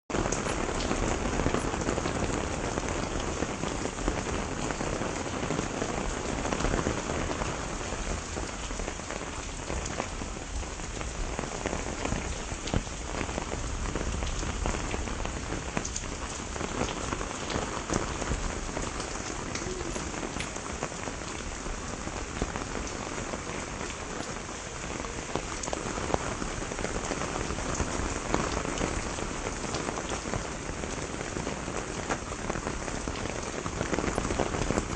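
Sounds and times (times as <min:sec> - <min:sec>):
steady rain patter: 0:00.1 - 0:34.9.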